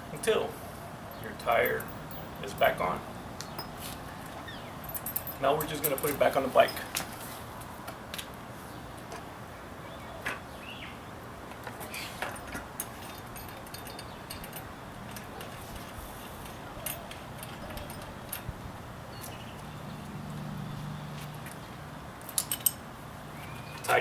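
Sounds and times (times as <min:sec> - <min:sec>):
light metallic clicks and clinks: 0:01.1 - 0:07.2, 0:11.9 - 0:20.0, 0:21.2 - 0:22.8.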